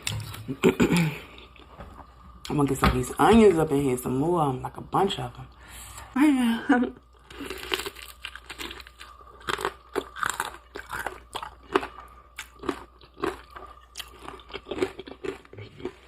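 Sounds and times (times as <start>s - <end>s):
crunching and chewing fried chicken: 7.1s - 16.0s.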